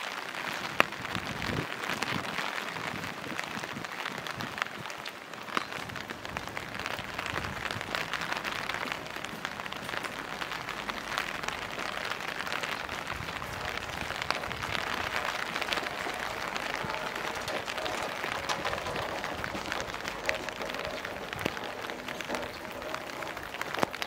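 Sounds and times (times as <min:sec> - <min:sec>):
rain pattering: 0:00.0 - 0:24.0.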